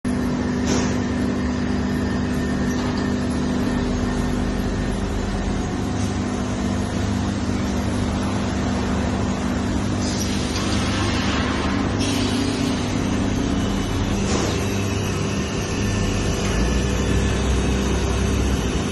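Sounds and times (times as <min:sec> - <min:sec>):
laminating machine humming: 0:00.0 - 0:18.9
machine hissing: 0:09.8 - 0:16.2.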